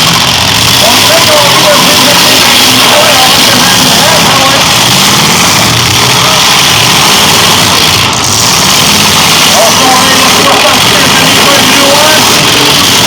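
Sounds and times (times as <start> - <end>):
car engines running loud: 0.0 - 13.0.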